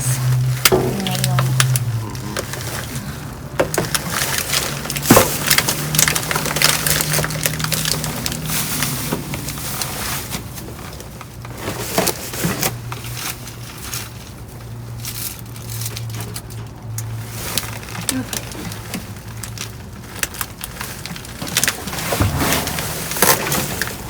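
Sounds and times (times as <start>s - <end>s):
items knocking and clattering: 0.0s - 12.8s, 20.2s - 24.0s
plastic bags crackling: 0.0s - 16.5s, 17.1s - 24.0s
steady low hum: 22.1s - 24.0s.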